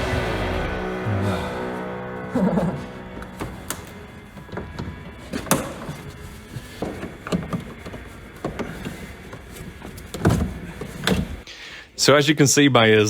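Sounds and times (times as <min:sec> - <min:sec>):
plastic trim knocks and clatters: 0:03.2 - 0:11.4.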